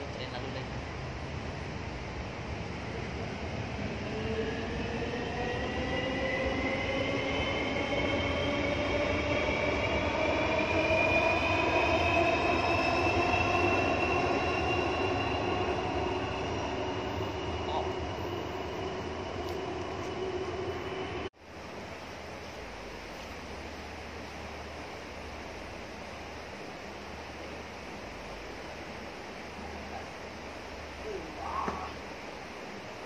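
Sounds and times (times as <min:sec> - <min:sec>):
electric train passing overhead: 0:00.0 - 0:33.0.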